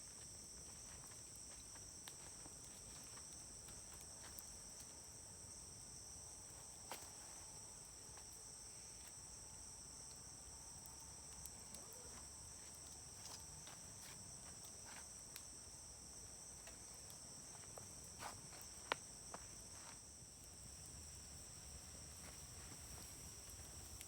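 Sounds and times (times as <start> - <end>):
insects chirring: 0.0 - 24.0
campfire crackling and popping: 16.6 - 24.0.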